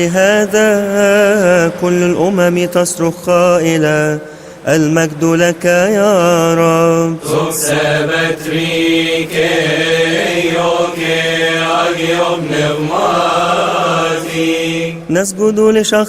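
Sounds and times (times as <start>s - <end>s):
man chanting: 0.0s - 16.0s
man breathing: 4.2s - 4.7s.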